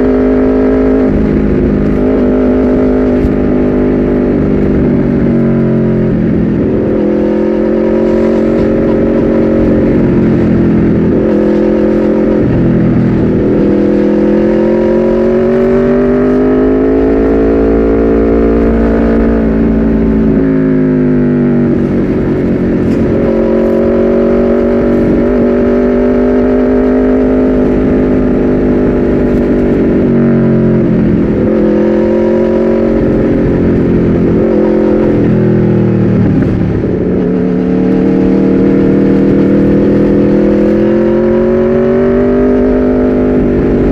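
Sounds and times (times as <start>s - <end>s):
motorcycle engine revving and upshifting: 0.0s - 43.9s.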